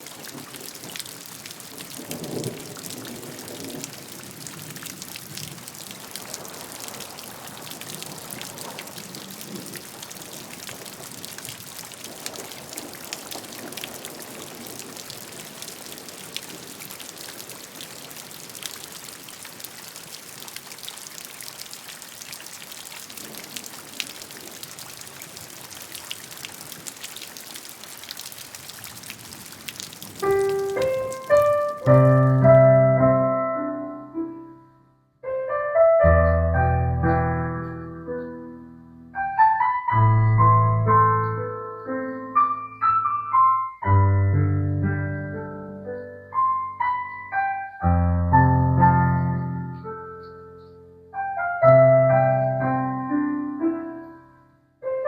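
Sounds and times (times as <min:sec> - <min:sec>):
rain patter: 0:00.0 - 0:33.4.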